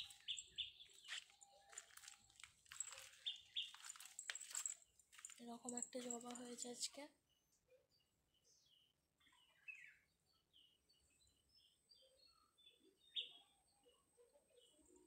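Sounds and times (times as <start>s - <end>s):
faint bird chirps: 0.0s - 2.2s, 7.2s - 15.0s.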